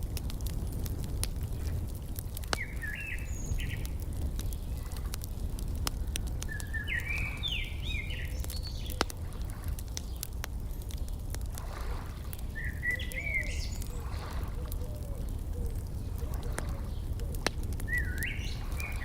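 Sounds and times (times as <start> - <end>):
wood fire crackling: 0.0 - 19.0
songbird chirping: 2.5 - 4.9, 6.3 - 11.3, 12.2 - 19.0.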